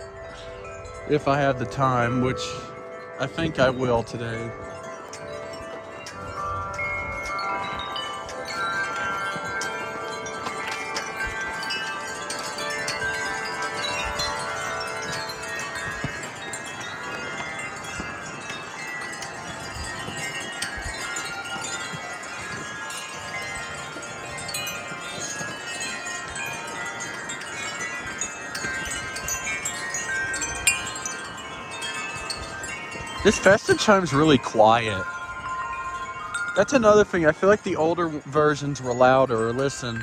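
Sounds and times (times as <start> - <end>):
wind chimes ringing: 0.0 - 40.0
wind rumble on microphone: 0.0 - 40.0.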